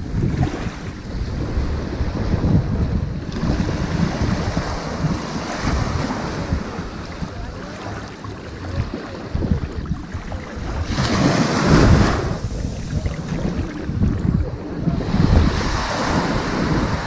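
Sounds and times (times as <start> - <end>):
ocean surf on sandy beach: 0.0 - 17.0.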